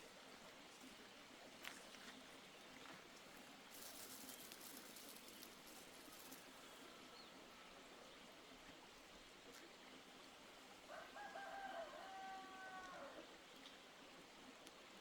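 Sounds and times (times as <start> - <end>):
faint background hiss: 0.0 - 12.1
light crackling: 3.7 - 6.5.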